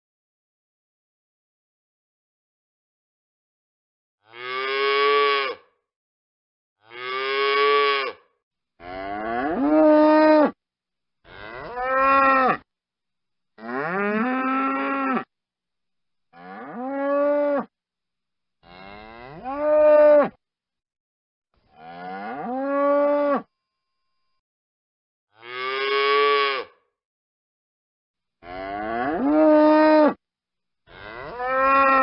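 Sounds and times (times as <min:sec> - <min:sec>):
bull mooing: 0:11.3 - 0:12.6, 0:13.6 - 0:15.3, 0:30.9 - 0:32.0.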